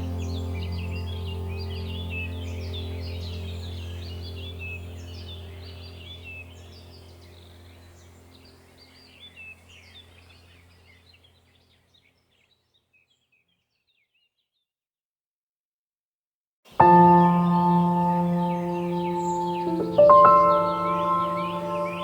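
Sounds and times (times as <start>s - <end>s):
low steady drone: 0.0s - 10.7s, 16.8s - 22.0s
birds chirping: 0.0s - 14.4s, 16.7s - 22.0s.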